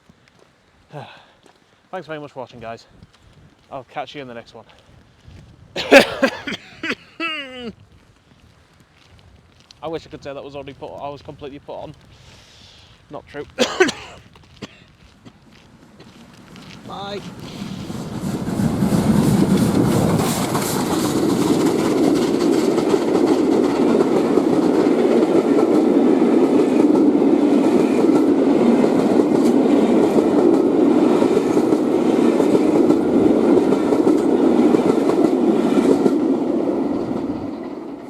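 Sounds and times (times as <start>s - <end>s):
clickety-clack over rail joints: 7.9s - 38.0s
train wheels rumbling on rail: 8.5s - 38.0s.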